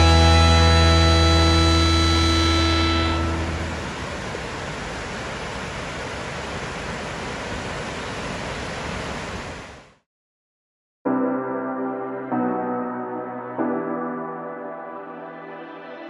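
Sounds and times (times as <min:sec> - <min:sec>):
music: 0:00.0 - 0:03.8, 0:11.1 - 0:16.0.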